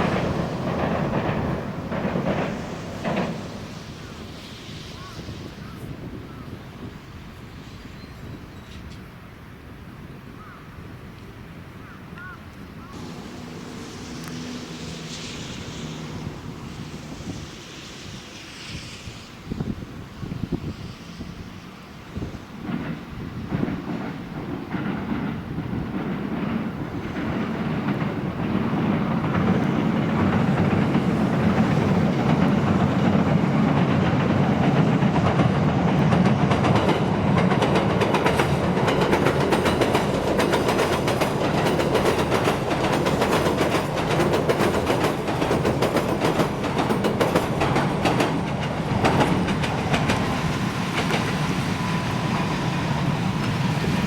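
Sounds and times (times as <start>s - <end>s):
train wheel clatter: 0.0s - 9.1s, 12.9s - 54.0s
train rumbling over bridge: 0.0s - 54.0s.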